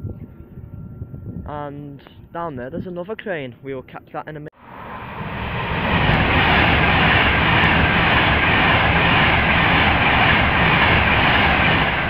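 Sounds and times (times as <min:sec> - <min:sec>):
electric train passing at speed: 0:04.6 - 0:12.0.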